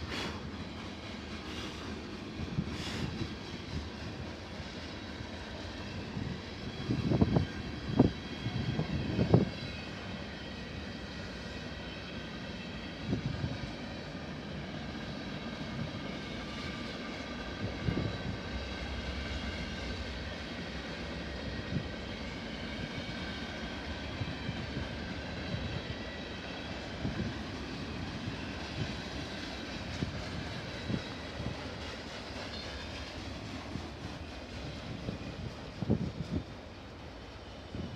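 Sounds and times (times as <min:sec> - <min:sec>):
freight train rumbling: 0:00.0 - 0:37.9
train wheels clicking and knocking: 0:27.1 - 0:37.0.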